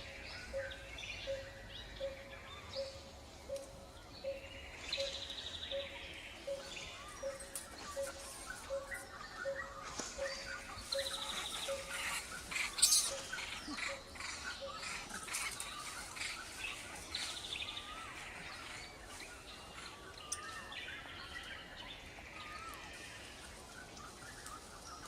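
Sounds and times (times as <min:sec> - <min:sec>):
birds chirping and calling: 0:00.0 - 0:25.0
buzzy bird trills: 0:05.0 - 0:16.8.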